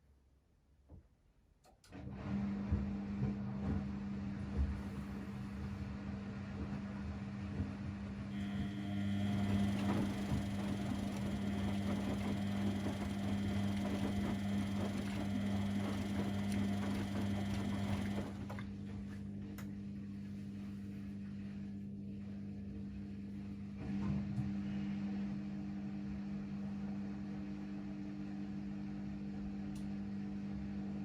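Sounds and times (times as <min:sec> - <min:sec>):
washing machines and dryers humming: 0:01.7 - 0:31.0
motor whine: 0:08.3 - 0:18.4.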